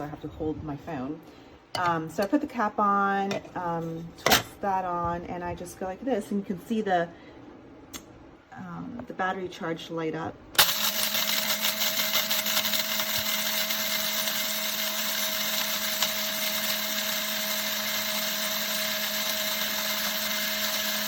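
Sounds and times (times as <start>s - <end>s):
coffee grinder whirring: 10.6s - 21.0s.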